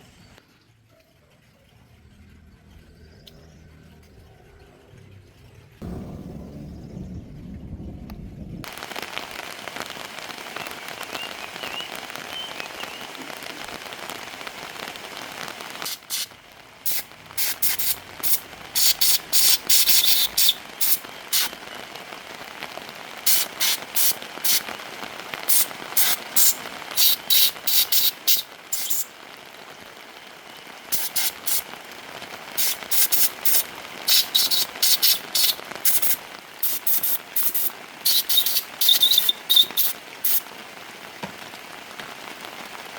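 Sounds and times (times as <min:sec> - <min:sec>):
short hissing spray bursts: 0:15.8 - 0:21.5, 0:23.2 - 0:24.7, 0:25.5 - 0:29.1, 0:30.9 - 0:31.7, 0:32.6 - 0:40.4.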